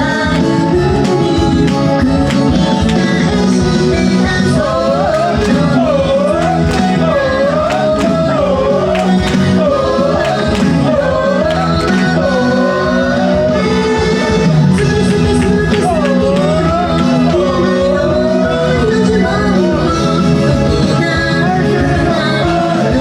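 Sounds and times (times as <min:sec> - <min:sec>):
backing chords: 0:00.0 - 0:23.0
high voice singing: 0:00.0 - 0:23.0
percussive beat: 0:00.1 - 0:03.9, 0:04.7 - 0:12.5, 0:14.4 - 0:18.0.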